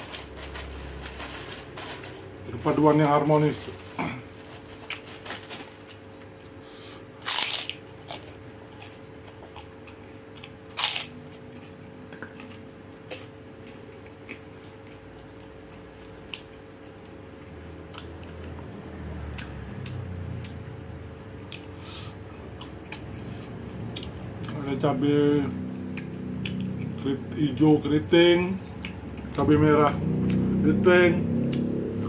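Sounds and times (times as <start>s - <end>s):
faint steady hum: 0.0s - 32.0s
man chewing and lip smacking: 11.5s - 18.7s, 19.3s - 20.8s, 21.4s - 24.6s, 25.9s - 27.0s, 28.7s - 29.4s, 31.5s - 31.7s.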